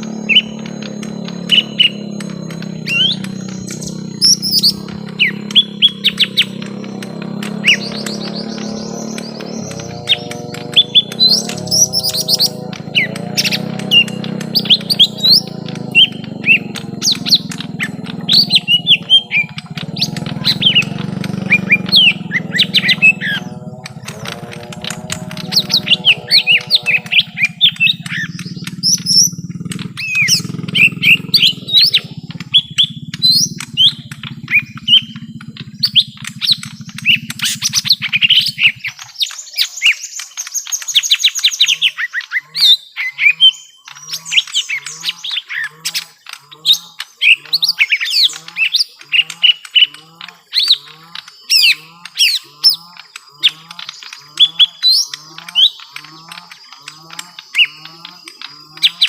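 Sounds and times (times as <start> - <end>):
low hum: 0.0 - 39.1
birds chirping and squawking: 0.0 - 59.0.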